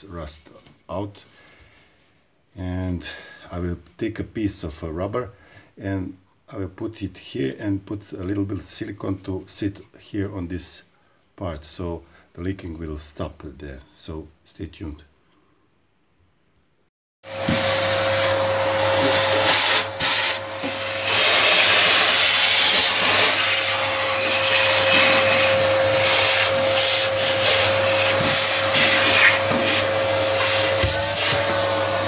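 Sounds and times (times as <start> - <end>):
electric motor fan whirring: 17.3 - 32.0.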